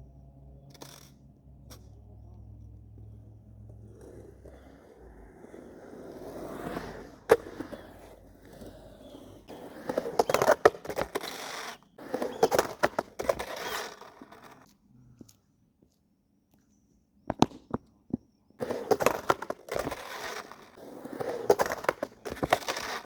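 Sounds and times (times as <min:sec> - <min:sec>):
skateboard scraping: 0:00.7 - 0:01.8, 0:03.7 - 0:14.8, 0:17.3 - 0:23.0
skateboard wheels rolling on concrete: 0:00.7 - 0:16.0, 0:17.2 - 0:23.0
skateboard clacks: 0:03.8 - 0:14.7, 0:17.3 - 0:23.0.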